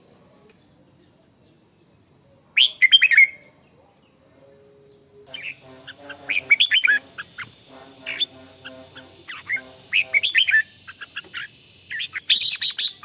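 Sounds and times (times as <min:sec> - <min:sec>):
bird singing whistled notes: 0:02.6 - 0:13.0
high thin whine: 0:05.1 - 0:13.0.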